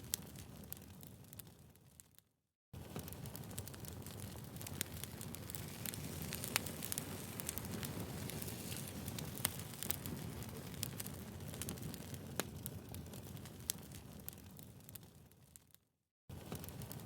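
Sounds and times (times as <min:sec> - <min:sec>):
low rumble of fire: 0:00.0 - 0:02.1, 0:02.8 - 0:17.0
firewood crackles and pops: 0:00.0 - 0:02.2, 0:02.8 - 0:17.0.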